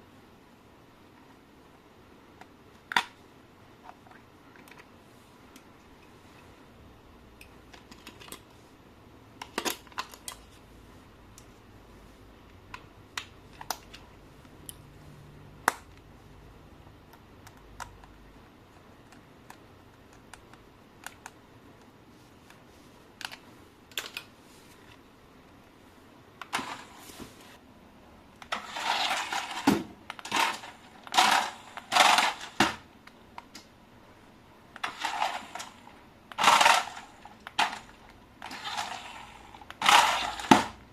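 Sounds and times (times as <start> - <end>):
plastic parts clicking and tapping: 3.8 - 4.9, 7.4 - 8.5, 9.4 - 10.5, 23.2 - 25.0, 28.4 - 33.7, 34.8 - 39.0.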